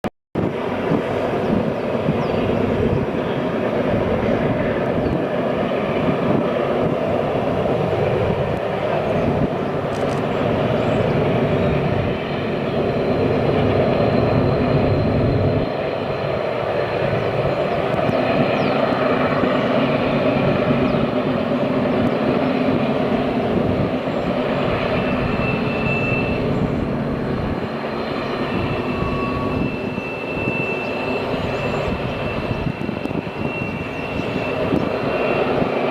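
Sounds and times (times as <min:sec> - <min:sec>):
train rumbling and rattling past: 0:00.4 - 0:35.9
faint high whine: 0:24.1 - 0:35.5.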